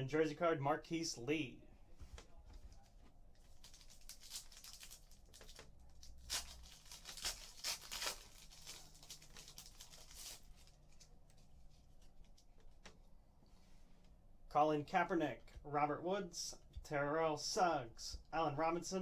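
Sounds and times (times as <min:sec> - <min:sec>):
wrapper tearing and crinkling: 0:03.5 - 0:11.1.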